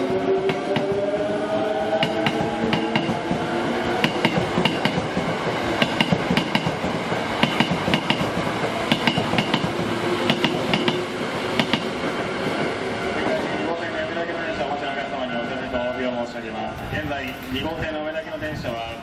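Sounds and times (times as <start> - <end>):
train rumble: 0.0 - 19.0
train wheels clicking on rails: 1.9 - 13.4.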